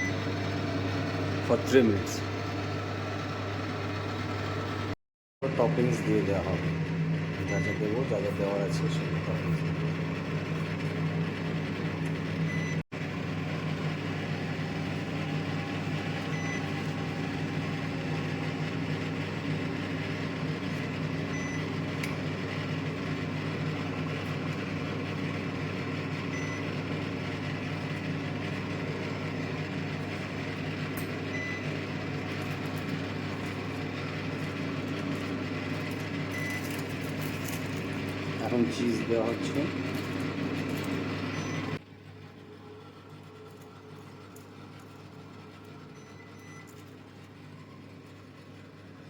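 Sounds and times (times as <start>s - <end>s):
microwave oven humming: 0.0s - 49.0s.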